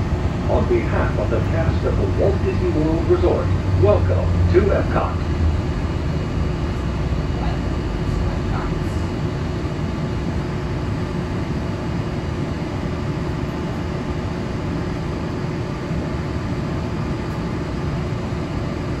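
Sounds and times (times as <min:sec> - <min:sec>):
train running rumble: 0:00.0 - 0:11.5
faint steady hum: 0:00.0 - 0:19.0.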